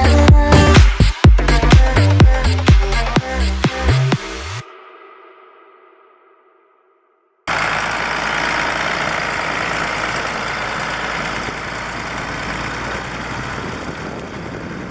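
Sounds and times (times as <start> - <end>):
tractor diesel engine running: 7.5 - 14.9.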